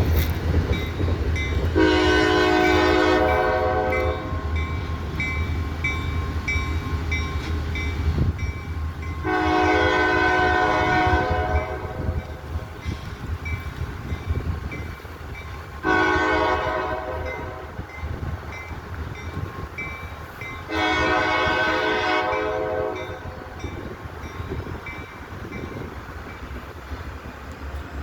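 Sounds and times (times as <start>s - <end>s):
diesel locomotive rumble: 0.0s - 28.0s
locomotive air horn blasts: 1.7s - 4.6s, 9.2s - 12.4s, 15.8s - 17.9s, 20.7s - 23.6s.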